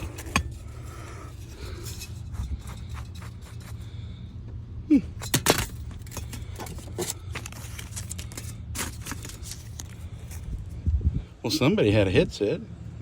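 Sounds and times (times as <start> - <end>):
objects rummaged clicking and knocking: 0.0 - 3.8, 5.2 - 10.7
steady low hum: 0.0 - 11.8.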